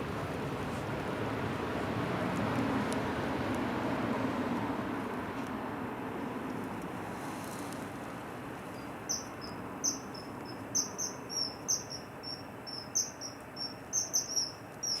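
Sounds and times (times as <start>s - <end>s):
background hiss: 5.8s - 15.0s.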